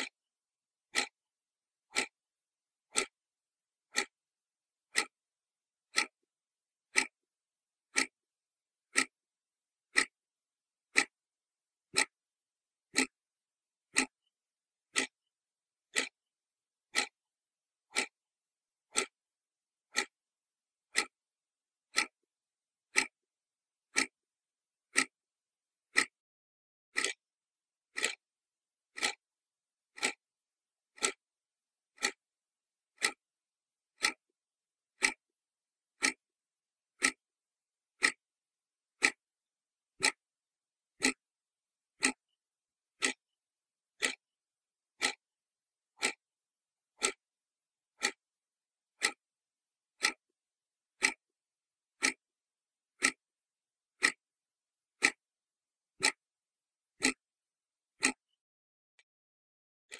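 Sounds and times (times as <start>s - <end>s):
clock ticking: 0.9s - 1.2s, 1.9s - 2.2s, 2.9s - 3.2s, 3.9s - 4.2s, 4.9s - 5.2s, 5.9s - 6.2s, 6.9s - 7.2s, 7.9s - 8.2s, 8.9s - 9.1s, 9.9s - 10.2s, 10.9s - 11.2s, 11.9s - 12.2s, 12.9s - 13.2s, 13.9s - 14.2s, 14.9s - 15.2s, 15.9s - 16.2s, 16.9s - 17.2s, 17.9s - 18.2s, 18.9s - 19.2s, 19.9s - 20.2s, 20.9s - 21.2s, 21.9s - 22.2s, 22.9s - 23.2s, 23.9s - 24.2s, 24.9s - 25.2s, 25.9s - 26.2s, 26.9s - 27.2s, 27.9s - 28.2s, 28.9s - 29.2s, 29.9s - 30.2s, 30.9s - 31.2s, 32.0s - 32.2s, 33.0s - 33.2s, 34.0s - 34.3s, 35.0s - 35.2s, 36.0s - 36.2s, 37.0s - 37.2s, 38.0s - 38.2s, 39.0s - 39.2s, 40.0s - 40.2s, 41.0s - 41.2s, 42.0s - 42.3s, 43.0s - 43.3s, 44.0s - 44.2s, 45.0s - 45.2s, 46.0s - 46.2s, 47.0s - 47.2s, 48.0s - 48.2s, 49.0s - 49.2s, 50.0s - 50.3s, 51.0s - 51.2s, 52.0s - 52.2s, 53.0s - 53.2s, 54.0s - 54.2s, 55.0s - 55.2s, 56.0s - 56.2s, 57.0s - 57.2s, 58.0s - 58.3s.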